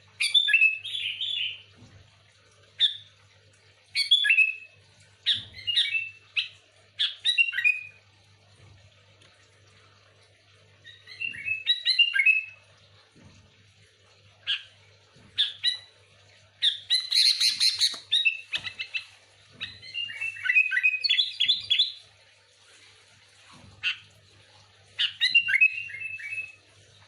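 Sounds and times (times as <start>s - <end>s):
bird chirping and whistling: 0.2s - 1.6s, 4.0s - 4.7s, 5.3s - 8.0s, 10.9s - 12.6s, 16.6s - 22.0s, 25.0s - 26.6s.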